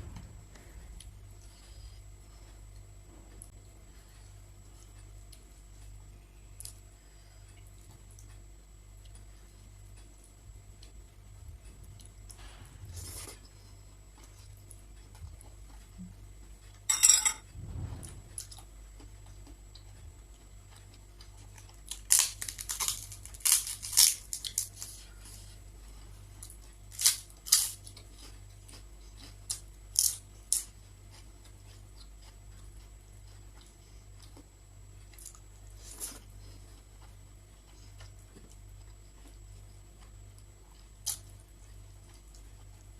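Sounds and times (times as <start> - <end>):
cutlery clinking against dishes: 16.9 - 17.5.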